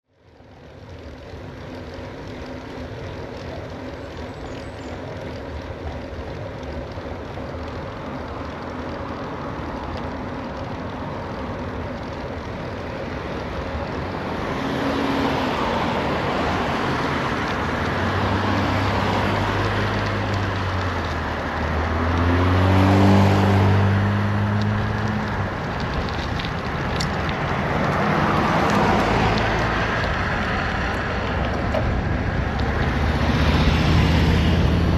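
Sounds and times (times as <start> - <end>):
low vehicle engine hum: 0.1 - 34.9
wind rushing over microphone: 21.6 - 34.9.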